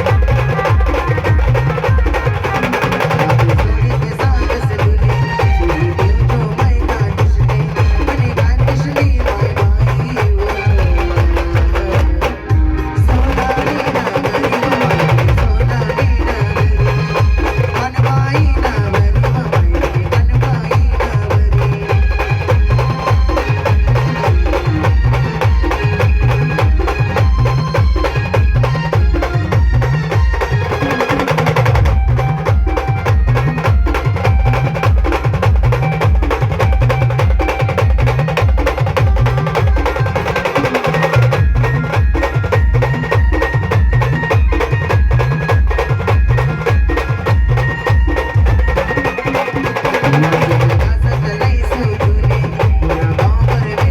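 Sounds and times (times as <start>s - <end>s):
loud bass-heavy party music: 3.3s - 31.0s.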